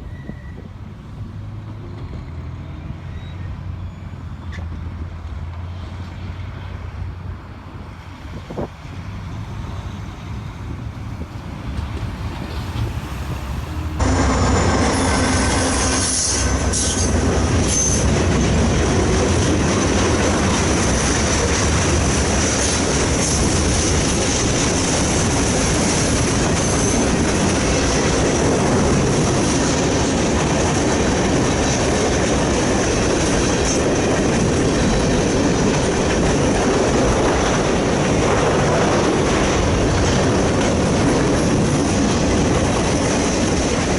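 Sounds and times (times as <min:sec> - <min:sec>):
high wheel squeal: 0:00.0 - 0:00.8, 0:02.5 - 0:04.8, 0:13.1 - 0:18.5, 0:25.7 - 0:28.4
wind noise: 0:00.0 - 0:02.9, 0:04.5 - 0:43.9
clickety-clack over rail joints: 0:00.0 - 0:43.9
train wheels rumbling on rail: 0:00.0 - 0:43.9.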